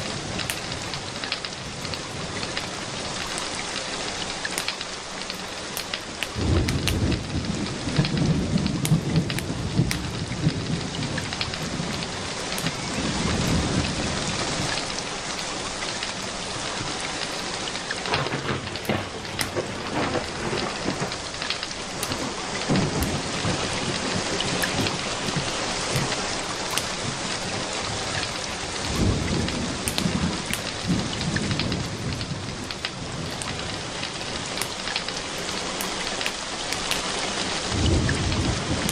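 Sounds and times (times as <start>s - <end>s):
steady rain: 0.0s - 38.9s
low rolls of thunder: 6.4s - 15.0s, 18.0s - 34.7s, 37.6s - 38.9s.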